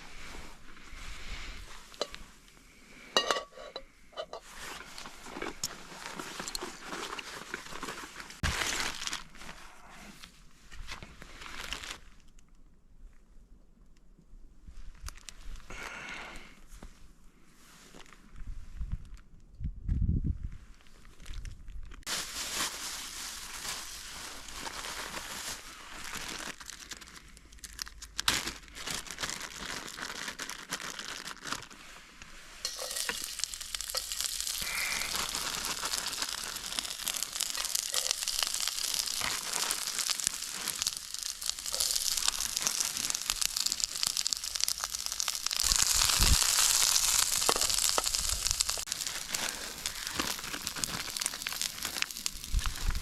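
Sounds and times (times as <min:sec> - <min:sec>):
wood fire crackling: 0:00.0 - 0:09.7, 0:31.6 - 0:53.0
food sizzling in a pan: 0:32.6 - 0:53.0.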